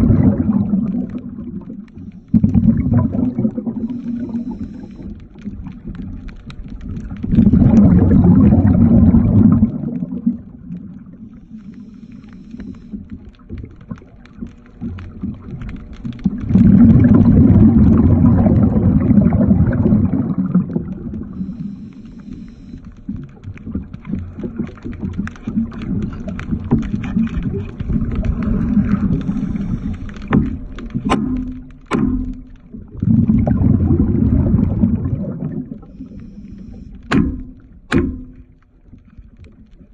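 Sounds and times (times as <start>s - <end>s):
underwater bubbling and rumbling: 0.0s - 39.9s
sharp clicks: 1.8s - 7.5s, 11.3s - 17.3s.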